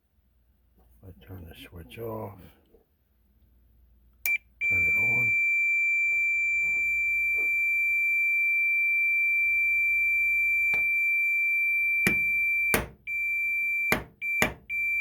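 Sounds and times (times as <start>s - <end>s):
multimeter continuity beep: 4.3s - 15.0s
taps on a switch: 12.1s - 13.0s, 13.9s - 14.7s.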